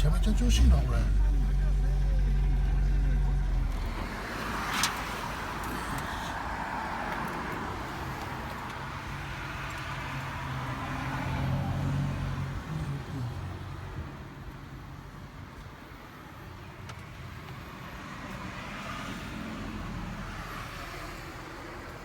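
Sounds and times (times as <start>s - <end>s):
car engine running: 0.0s - 6.4s.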